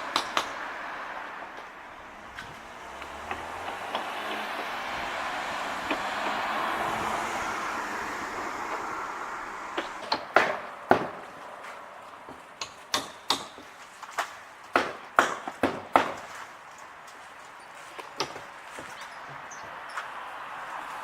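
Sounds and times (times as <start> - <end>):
vehicle passing: 0.0 - 12.3
sharp irregular clicks and knocks: 0.1 - 0.6, 2.4 - 4.8, 5.8 - 6.4, 12.6 - 16.2.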